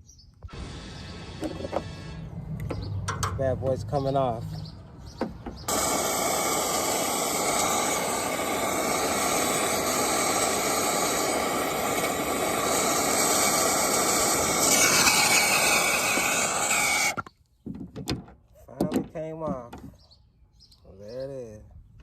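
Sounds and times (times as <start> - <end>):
torch flame hissing: 0.5 - 2.4, 5.7 - 17.3.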